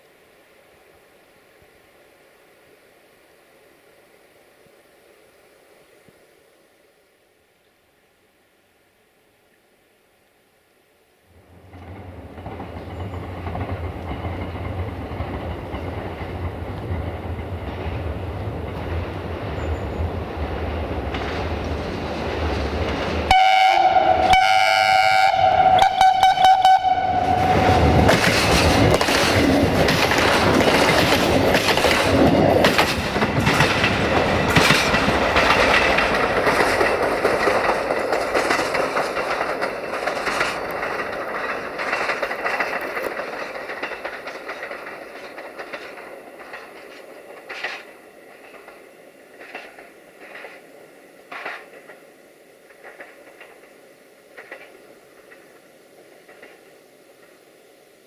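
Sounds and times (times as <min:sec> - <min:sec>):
wheels clicking over rail joints: 0:11.4 - 0:24.4, 0:25.9 - 0:57.4
diesel train engine rumble: 0:11.4 - 0:58.0
multi-tone train horn: 0:23.3 - 0:28.1.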